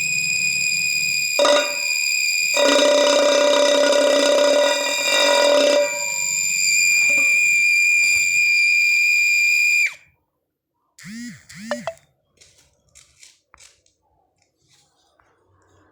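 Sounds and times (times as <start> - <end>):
electronic alarm-like tone: 0.0 - 7.6, 11.0 - 12.0.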